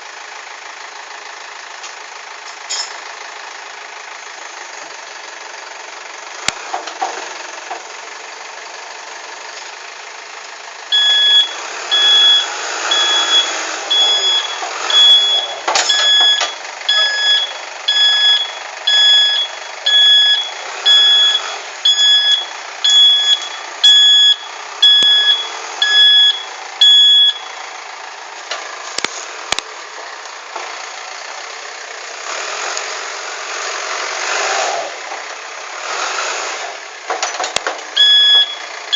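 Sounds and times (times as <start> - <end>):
diesel engine running: 0.0 - 38.9
reversing alarm beeping: 10.9 - 27.6, 38.0 - 38.7.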